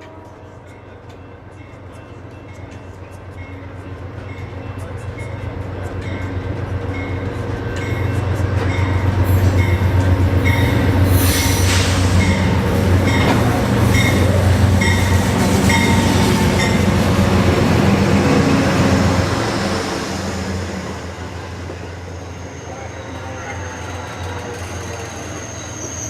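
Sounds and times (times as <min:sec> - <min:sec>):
train rumbling past: 0:00.0 - 0:26.0
high wheel squeal: 0:08.8 - 0:17.0, 0:21.8 - 0:26.0.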